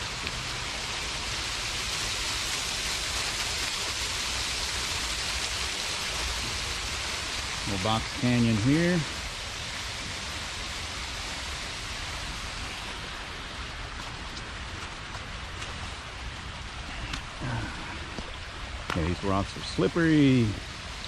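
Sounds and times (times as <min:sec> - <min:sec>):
falling water rushing: 0:00.0 - 0:21.0.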